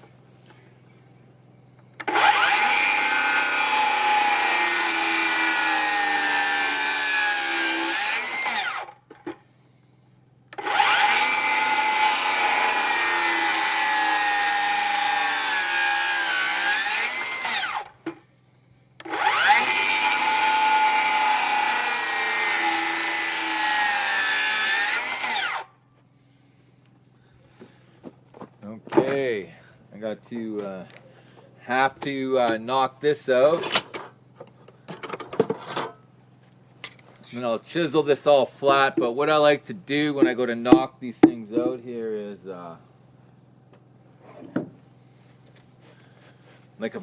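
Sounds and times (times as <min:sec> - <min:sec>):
circular saw cutting wood: 0:02.0 - 0:09.0, 0:10.6 - 0:17.9, 0:19.0 - 0:25.7.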